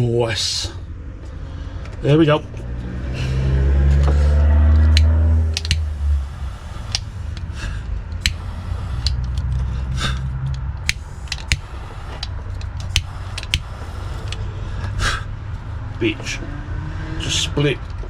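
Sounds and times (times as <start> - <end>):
loud steady motor hum: 0.8 - 18.0
small clicks of tools handled: 3.9 - 5.9, 6.9 - 7.5, 8.1 - 8.4, 9.0 - 15.0.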